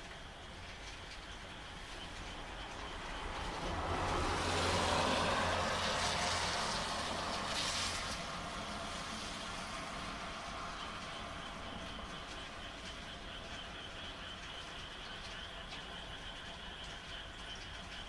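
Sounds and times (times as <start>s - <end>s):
rain: 0.0s - 18.0s
vehicle passing by: 2.8s - 12.2s
frogs calling faintly: 8.4s - 18.0s.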